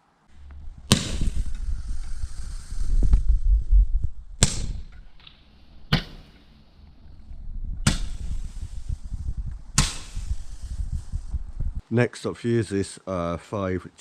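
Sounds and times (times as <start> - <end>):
firework hiss: 0.3 - 11.8
roman candle pops: 0.5 - 3.3, 4.4 - 6.4, 7.8 - 11.3.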